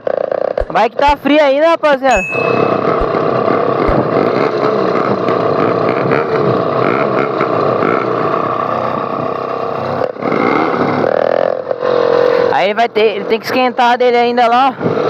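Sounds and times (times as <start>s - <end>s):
motorized bicycle engine revving: 2.9s - 12.5s.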